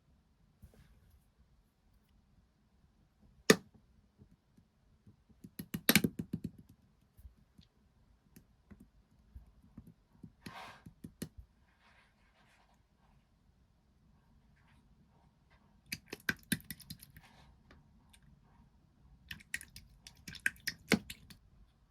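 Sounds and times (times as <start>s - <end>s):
slime squishing: 19.3s - 21.4s.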